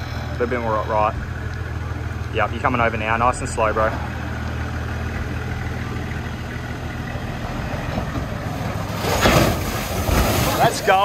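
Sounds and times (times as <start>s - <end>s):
engine running low: 0.0s - 11.0s.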